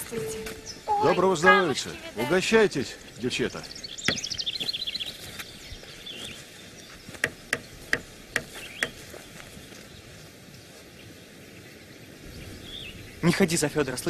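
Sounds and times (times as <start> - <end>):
faint birdsong: 0.0 - 14.0
sharp knocks: 7.2 - 9.0.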